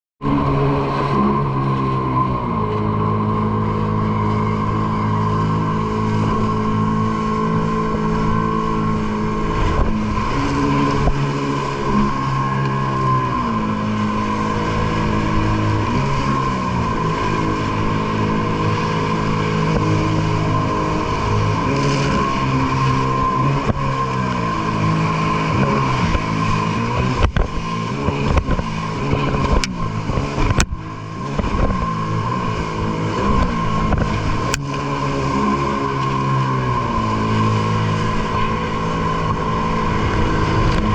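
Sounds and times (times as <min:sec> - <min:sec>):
jet ski engine running hard: 0:00.2 - 0:40.9.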